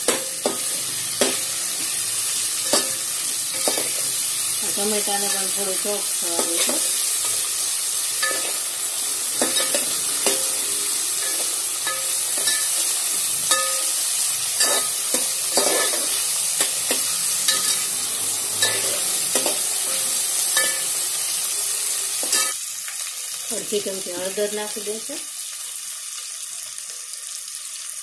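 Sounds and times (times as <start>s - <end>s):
vegetables sizzling in oil: 0.0s - 28.0s.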